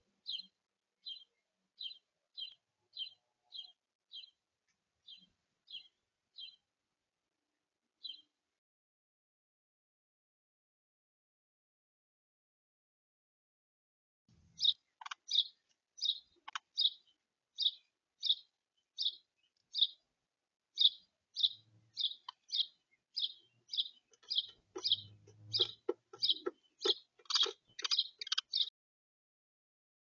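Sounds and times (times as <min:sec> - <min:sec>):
songbird chip notes: 0:20.8 - 0:28.7.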